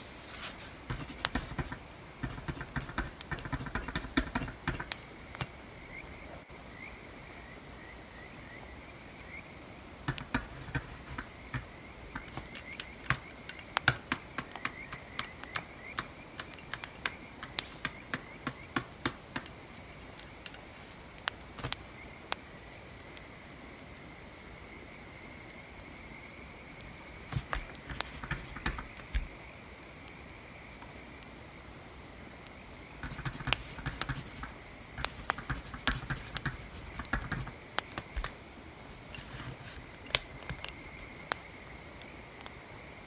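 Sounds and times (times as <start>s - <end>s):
campfire crackling: 0.0s - 7.8s, 8.8s - 43.0s.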